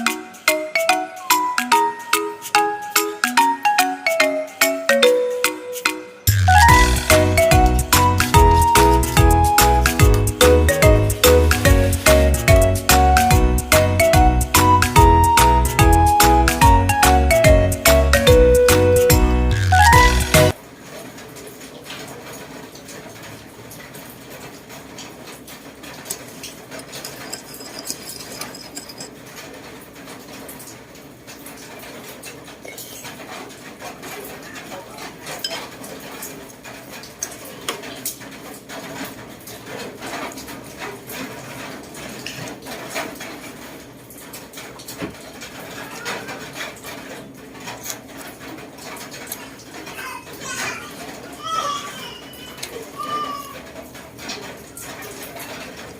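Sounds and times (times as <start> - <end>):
dishes and utensils clinking: 26.0 - 29.4, 35.1 - 38.0.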